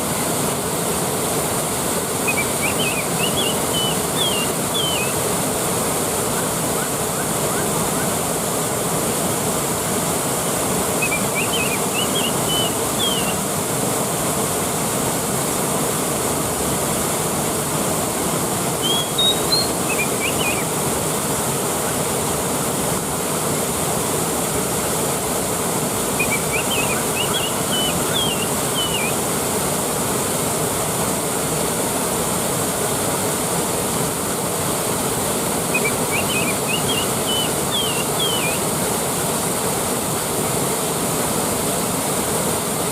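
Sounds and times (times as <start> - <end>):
waterfall rushing: 0.0 - 42.9
high chirping: 2.2 - 5.2, 11.0 - 13.4, 18.8 - 20.7, 26.2 - 29.2, 35.7 - 38.6.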